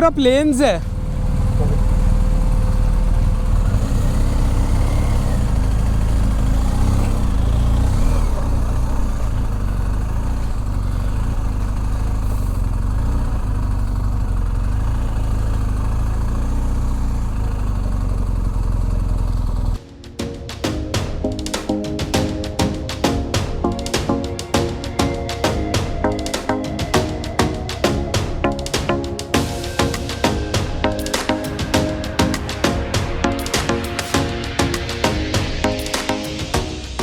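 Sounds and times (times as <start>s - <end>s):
motorcycle engine running: 0.0s - 19.8s
percussive music: 19.8s - 37.0s.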